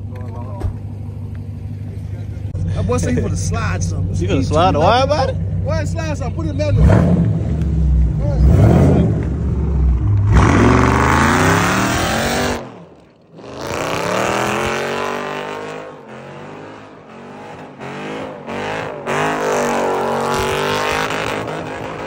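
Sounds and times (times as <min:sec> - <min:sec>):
car engine revving hard: 0:06.7 - 0:12.8, 0:13.4 - 0:22.0.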